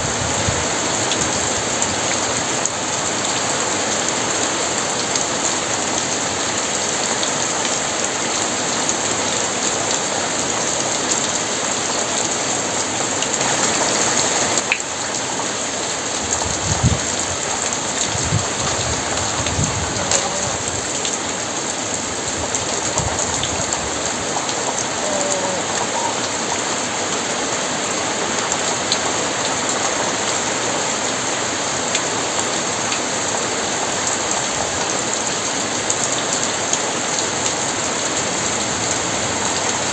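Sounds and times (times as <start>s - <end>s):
heavy rain falling: 0.0s - 39.9s
thunder rumbling: 16.4s - 21.0s, 22.1s - 26.6s.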